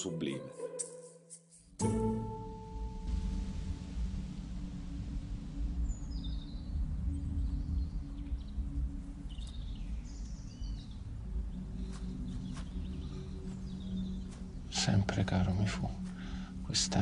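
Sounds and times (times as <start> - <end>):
steady low rumble: 2.5 - 17.0
small birds chirping: 5.1 - 17.0.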